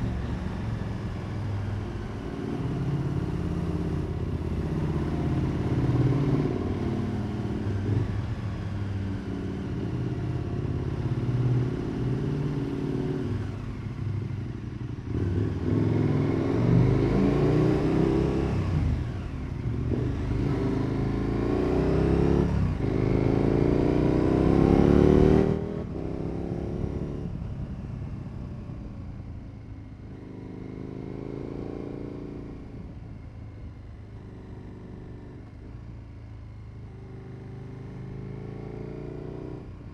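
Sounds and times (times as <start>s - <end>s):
motorcycle engine accelerating: 15.1s - 27.6s, 29.9s - 33.4s.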